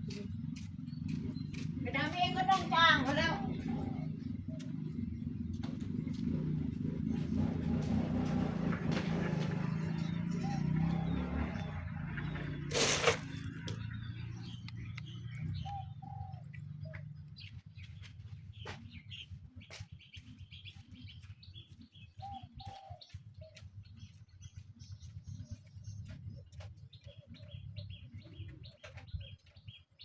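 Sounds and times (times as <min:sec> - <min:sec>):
small birds chirping: 0:00.0 - 0:30.0
dove cooing: 0:03.4 - 0:05.2, 0:09.8 - 0:11.8, 0:15.6 - 0:17.0, 0:22.2 - 0:23.6.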